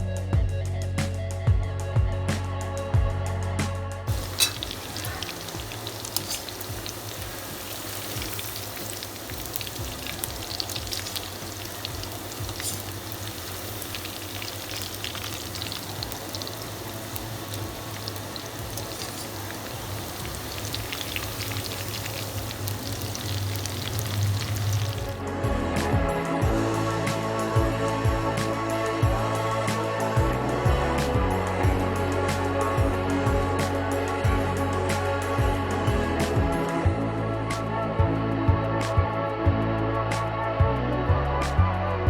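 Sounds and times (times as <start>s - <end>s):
food frying in oil: 4.1s - 25.2s.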